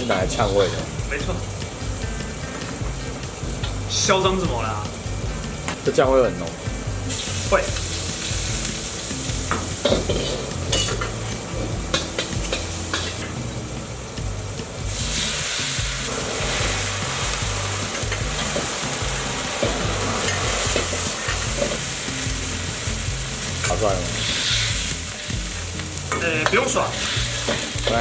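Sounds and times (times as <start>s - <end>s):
sauce sizzling in a hot pan: 0.0s - 28.0s
utensil clicking against pan: 25.3s - 28.0s.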